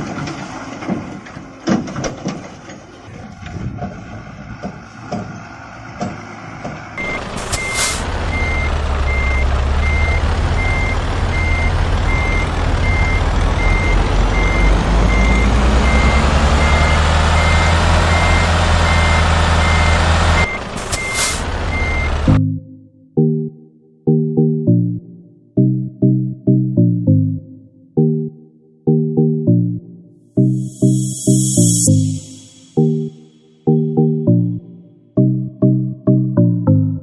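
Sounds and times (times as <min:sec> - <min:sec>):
loud engine running: 0:07.0 - 0:22.4
truck reversing alarm beeping: 0:07.0 - 0:22.4, 0:30.7 - 0:33.0
short hisses: 0:07.4 - 0:08.1, 0:20.8 - 0:21.5.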